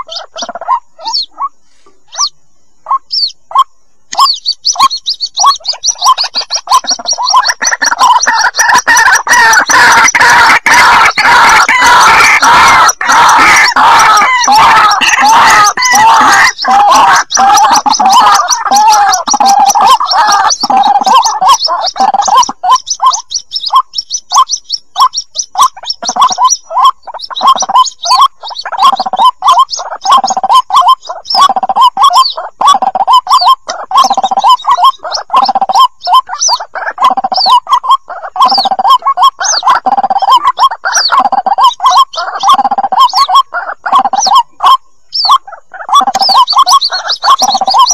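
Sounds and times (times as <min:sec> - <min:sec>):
bird chicks chirping calls: 0:00.0 - 0:47.9.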